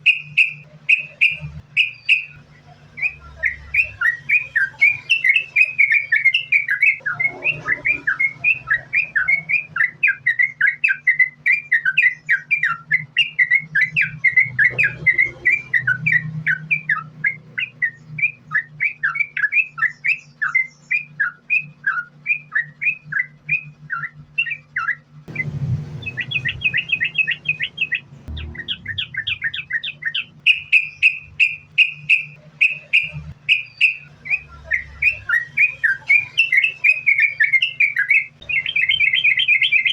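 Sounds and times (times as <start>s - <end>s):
bird rapid chirping song: 0.0s - 39.9s.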